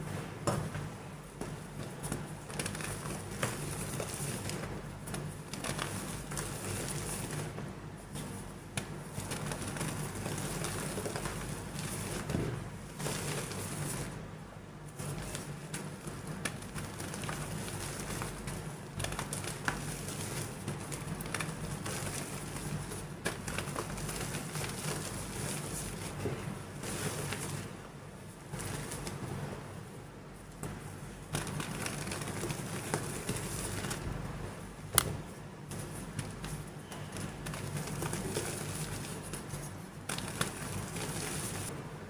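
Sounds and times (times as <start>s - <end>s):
chalk crumbling: 35.7s - 41.7s.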